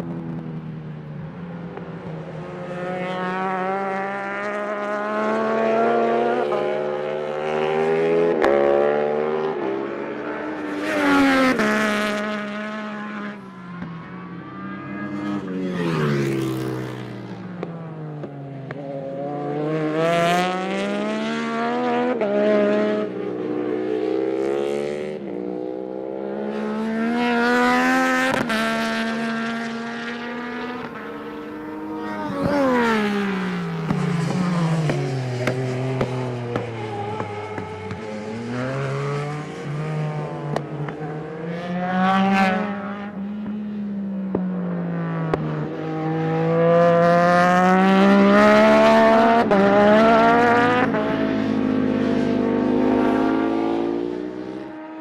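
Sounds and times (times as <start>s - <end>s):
race bike engine revving: 27.9s - 39.5s.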